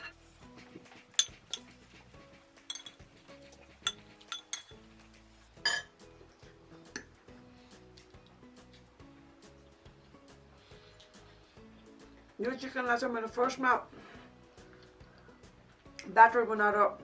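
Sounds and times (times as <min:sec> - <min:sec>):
quiet background music: 0:00.0 - 0:17.0
cutlery clinking against plate: 0:01.2 - 0:01.7, 0:02.7 - 0:03.0, 0:03.9 - 0:04.8, 0:05.7 - 0:06.0.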